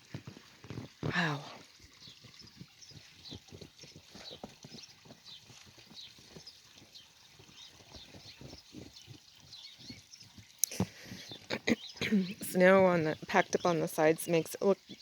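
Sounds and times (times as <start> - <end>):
footsteps crunching in snow: 0.0 - 1.2.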